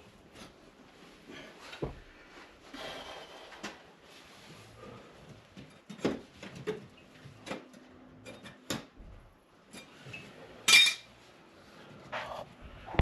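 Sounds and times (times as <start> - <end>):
hand tools clinking and knocking: 10.7 - 11.1.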